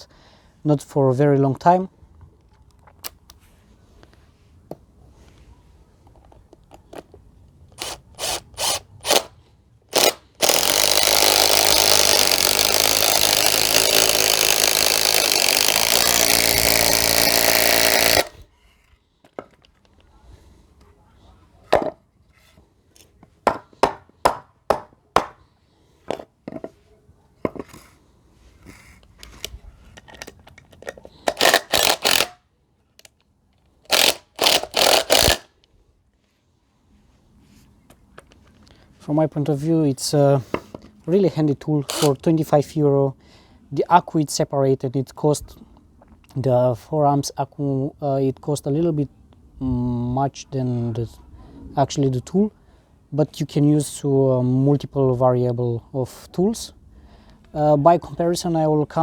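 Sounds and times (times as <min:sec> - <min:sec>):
impact driver hammering screw: 0:07.8 - 0:09.3, 0:09.9 - 0:18.4, 0:31.3 - 0:32.4, 0:33.9 - 0:35.5, 0:41.9 - 0:42.1.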